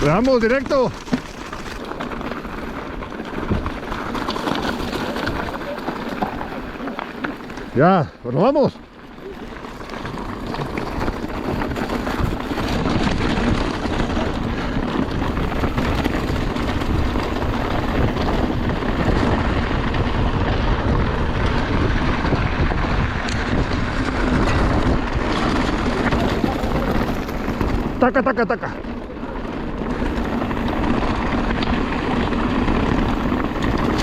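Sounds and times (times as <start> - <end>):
mountain bike rattle and tyre noise: 0.0 - 34.0
wind rushing over microphone: 7.6 - 34.0.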